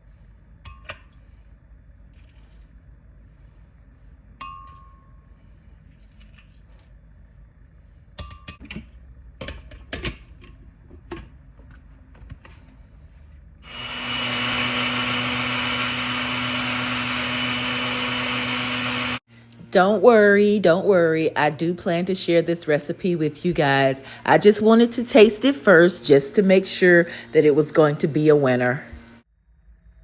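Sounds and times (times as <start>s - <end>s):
glass clink: 4.4s - 5.2s
blender running: 13.6s - 19.6s, 26.0s - 29.2s.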